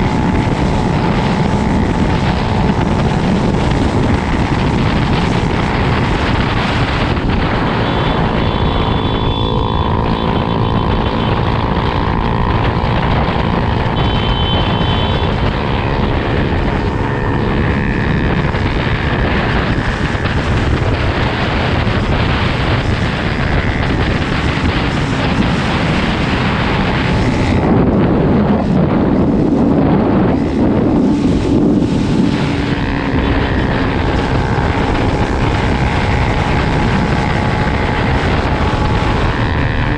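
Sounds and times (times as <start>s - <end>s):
motocross bike engine running: 0.0s - 39.9s
wind rush on microphone: 0.0s - 39.9s.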